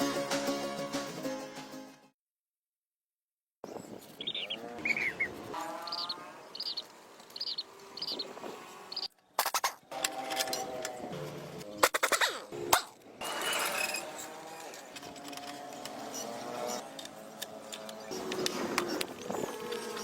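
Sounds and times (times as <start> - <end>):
birds chirping: 3.6 - 12.2, 14.3 - 20.0
rough scraping and scratching: 8.2 - 20.0.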